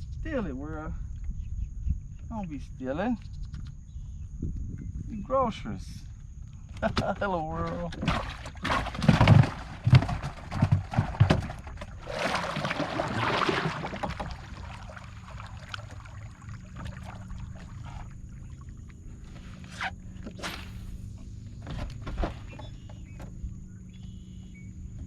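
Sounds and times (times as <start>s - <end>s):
knocks and thuds against boat: 6.7s - 18.5s, 21.5s - 24.1s
water movement: 7.6s - 21.6s
water splash: 11.4s - 18.9s.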